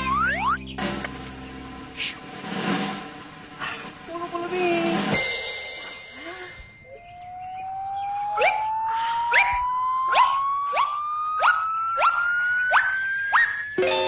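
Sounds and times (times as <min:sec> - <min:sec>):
whistle tone rising in pitch: 0:00.0 - 0:00.7, 0:06.8 - 0:14.0.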